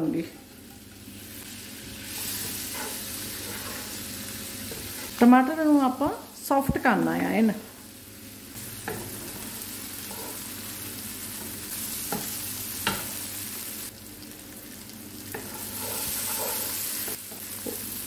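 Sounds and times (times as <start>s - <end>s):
masala sizzling in a frying pan: 0.0s - 18.0s
wooden spatula scraping a pan: 8.9s - 10.5s, 15.3s - 17.8s.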